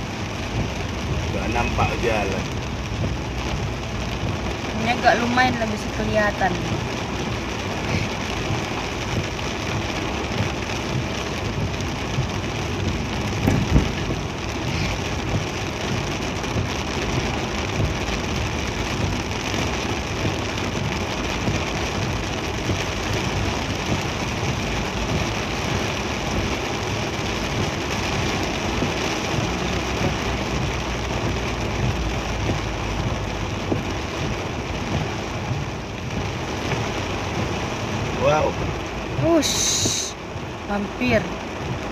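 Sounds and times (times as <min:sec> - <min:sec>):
heavy rain on a vehicle: 0:00.0 - 0:41.9.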